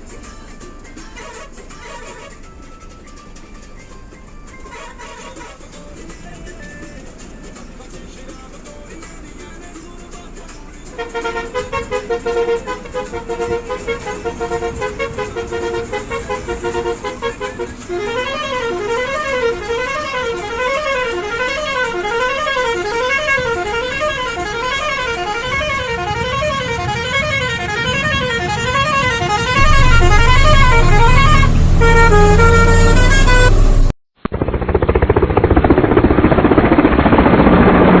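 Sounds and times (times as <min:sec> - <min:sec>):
truck musical horn warbling: 0:01.0 - 0:02.7, 0:04.6 - 0:05.8, 0:11.0 - 0:33.9
loud low hum: 0:29.6 - 0:38.0
loud rough dull noise: 0:29.6 - 0:38.0.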